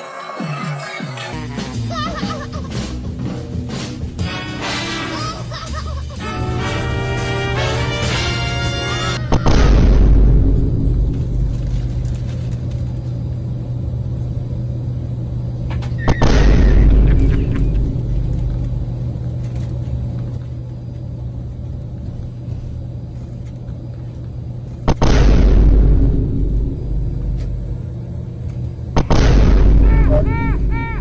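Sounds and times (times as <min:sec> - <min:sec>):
steady low hum: 0:01.3 - 0:31.0
deep booms with low rumble: 0:09.3 - 0:12.2, 0:16.1 - 0:19.0, 0:24.9 - 0:28.0, 0:28.9 - 0:30.8.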